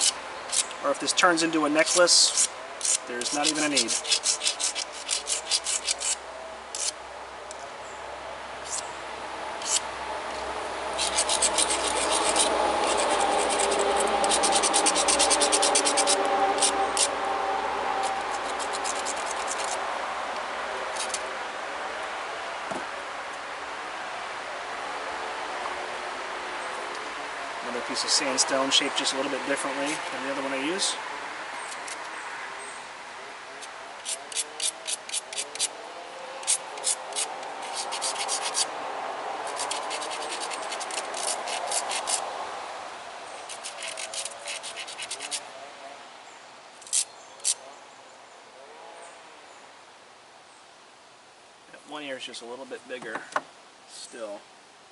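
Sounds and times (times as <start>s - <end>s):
steady background hiss: 0.0s - 54.9s
stone scraping on sandstone: 1.6s - 7.0s, 9.6s - 9.8s, 11.0s - 17.1s, 18.1s - 19.8s, 36.4s - 38.6s, 43.5s - 45.4s.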